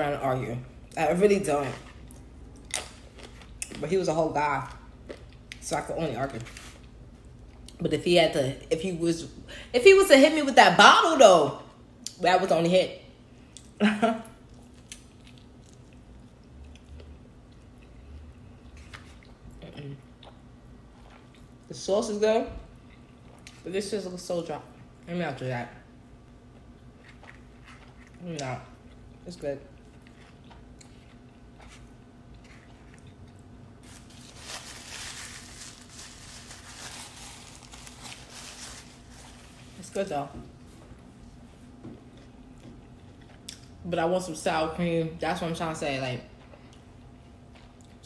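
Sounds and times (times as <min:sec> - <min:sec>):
faint steady hum: 0:00.0 - 0:48.0
paper napkin rustling: 0:33.8 - 0:40.8.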